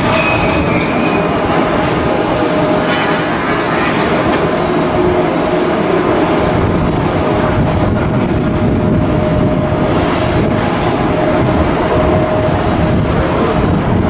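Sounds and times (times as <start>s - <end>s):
constant whine: 0.0s - 14.0s
machinery noise: 0.0s - 14.0s.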